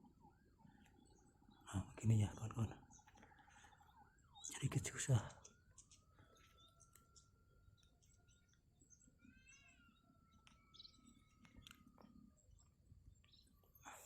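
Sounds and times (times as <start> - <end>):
squeaky chirp: 5.4 - 14.0.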